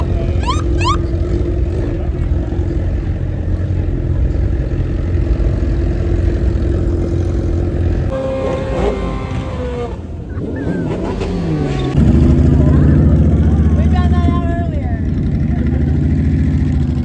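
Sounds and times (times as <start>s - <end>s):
quick rising chirps: 0.0s - 1.1s
car engine running: 0.0s - 17.0s.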